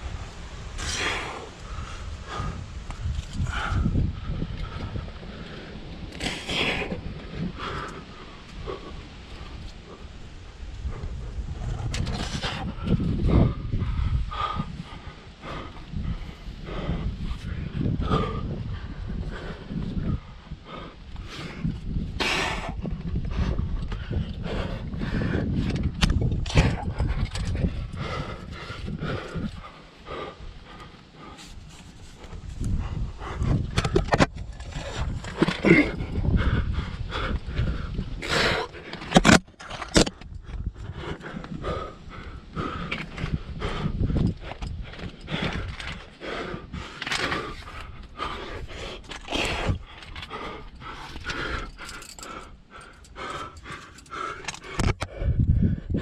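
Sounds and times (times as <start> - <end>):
climber panting hard: 0.6 - 56.0
gear scraping against rock: 11.4 - 13.1, 31.3 - 42.0
metal climbing hardware clinking: 49.0 - 55.1.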